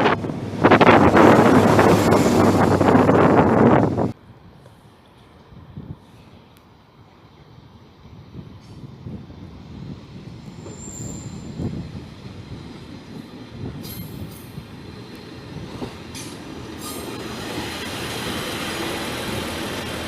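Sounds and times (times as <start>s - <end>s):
train rumbling past: 0.0s - 20.0s
high train squeal: 10.2s - 20.0s
short high screeches: 10.6s - 11.5s.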